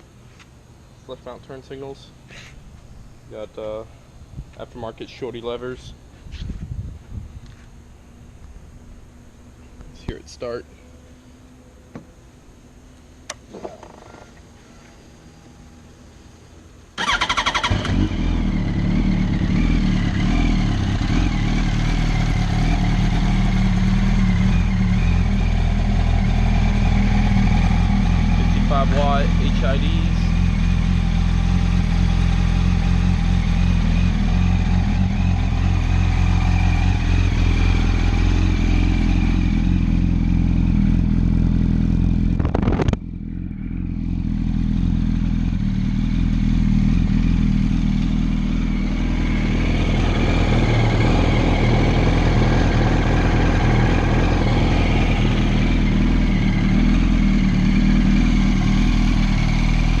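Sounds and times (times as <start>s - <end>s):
motorcycle engine idling: 17.0s - 60.0s.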